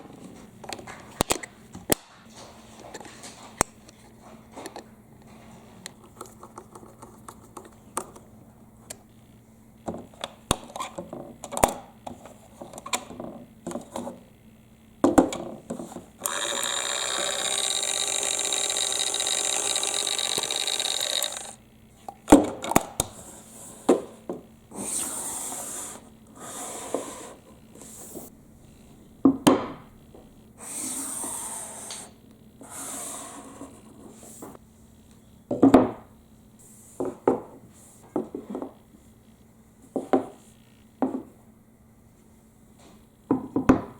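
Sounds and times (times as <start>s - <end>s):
small toy motor running: 16.2s - 21.6s.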